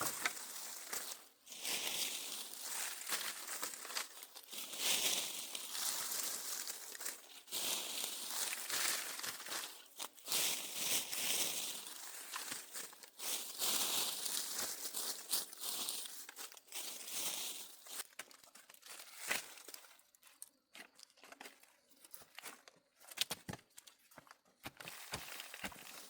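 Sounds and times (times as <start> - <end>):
dry material crinkling: 0.0 - 20.6.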